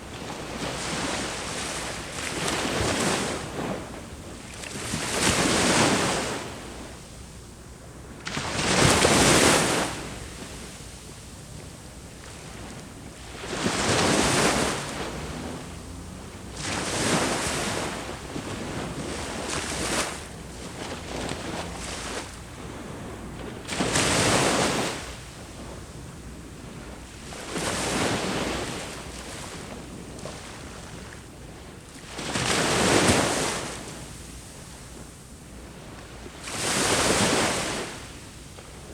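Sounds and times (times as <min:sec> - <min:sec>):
waves breaking on shore: 0:00.0 - 0:06.9, 0:08.2 - 0:38.9
low wash of water: 0:08.3 - 0:30.9.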